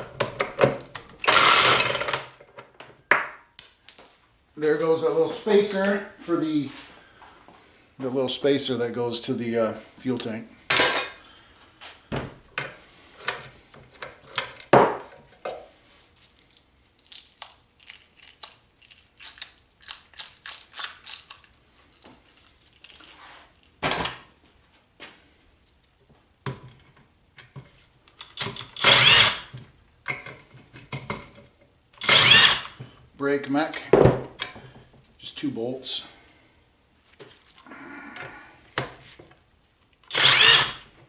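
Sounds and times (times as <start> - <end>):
hand tools and metal parts clicking: 0.0 - 2.9, 3.6 - 5.0, 10.7 - 11.2, 12.6 - 14.8, 16.2 - 24.2, 28.1 - 31.4, 32.0 - 32.8, 40.0 - 40.9
power driver running: 1.2 - 2.2, 28.4 - 29.5, 32.0 - 32.8, 40.1 - 40.9.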